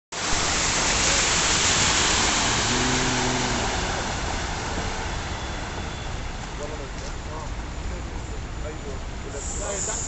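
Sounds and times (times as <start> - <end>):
heavy rain pouring: 0.2 - 5.8.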